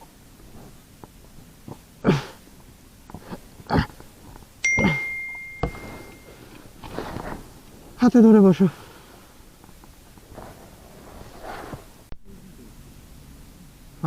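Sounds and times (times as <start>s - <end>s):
handling knocks and clatters: 4.2s - 7.7s
bright metallic ding: 4.6s - 6.5s.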